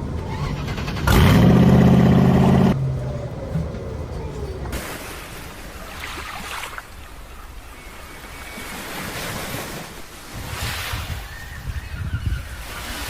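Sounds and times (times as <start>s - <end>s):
wind gusting over microphone: 9.4s - 13.0s.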